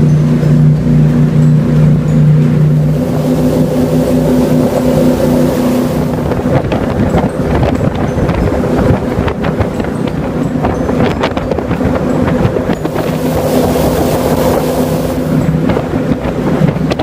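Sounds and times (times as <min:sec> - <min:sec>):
boat engine humming: 0:00.0 - 0:17.0
wind buffeting microphone: 0:00.0 - 0:17.0
rushing water: 0:02.5 - 0:17.0.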